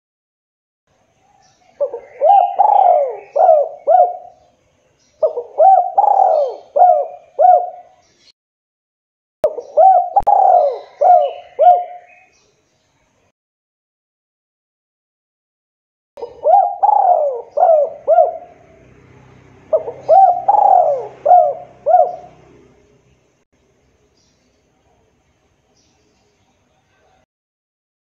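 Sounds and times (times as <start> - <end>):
dove cooing: 1.8 - 4.5, 5.2 - 8.0, 9.5 - 12.3, 16.2 - 19.0, 19.6 - 22.8.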